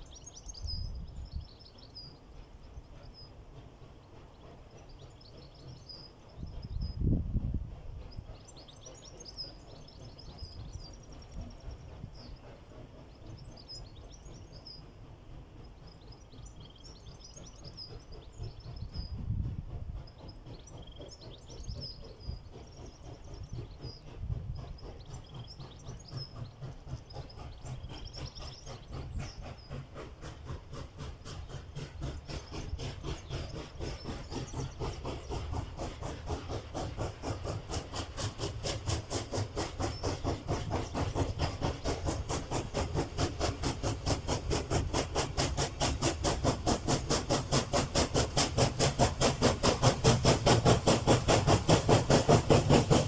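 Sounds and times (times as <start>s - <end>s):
birds singing: 0.0s - 53.0s
steam locomotive chuffing: 0.0s - 53.0s.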